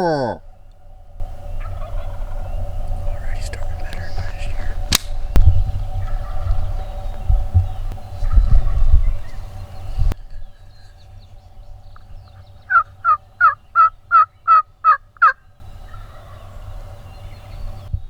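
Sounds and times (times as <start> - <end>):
turkey yelps: 12.7 - 16.5.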